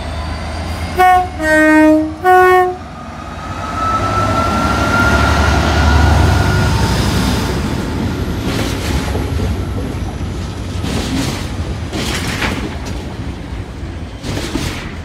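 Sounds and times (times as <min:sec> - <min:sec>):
freight wagons rumbling: 0:03.0 - 0:15.0
wheels clattering over rail joints: 0:07.9 - 0:15.0.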